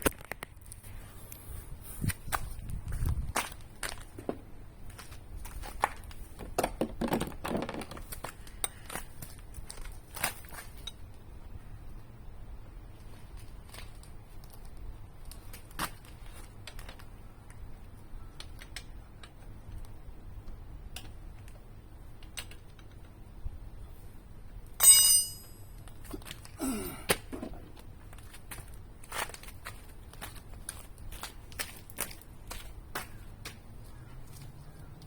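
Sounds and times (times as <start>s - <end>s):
metal tools clattering: 24.8s - 25.6s
ringing metallic clink: 24.8s - 25.7s.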